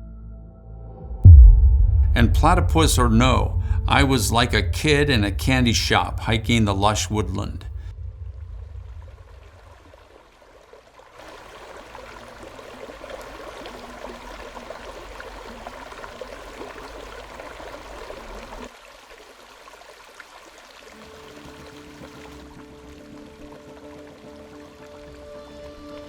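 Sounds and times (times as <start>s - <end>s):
stream water flowing: 8.8s - 26.0s.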